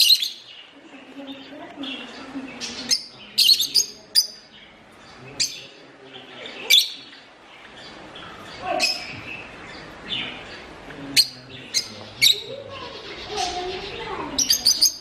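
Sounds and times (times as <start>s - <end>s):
parrots chirping: 0.0s - 15.0s.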